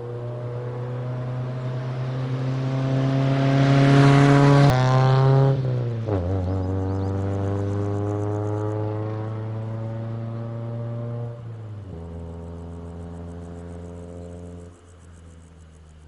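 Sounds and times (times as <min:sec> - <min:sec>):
car engine running: 0:10.9 - 0:16.0.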